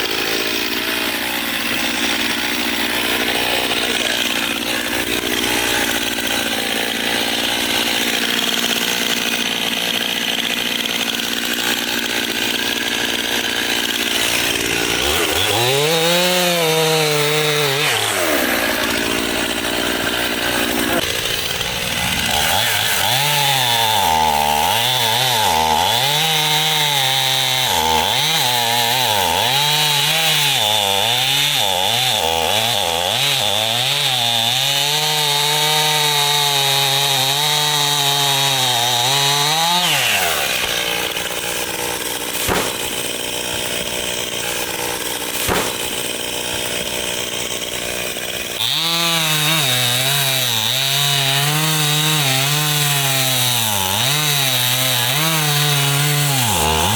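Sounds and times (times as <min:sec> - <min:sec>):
chainsaw cutting wood: 0:00.0 - 0:56.9
chainsaw idling: 0:00.0 - 0:56.9
sharp knocks: 0:42.4 - 0:43.1, 0:45.4 - 0:46.0.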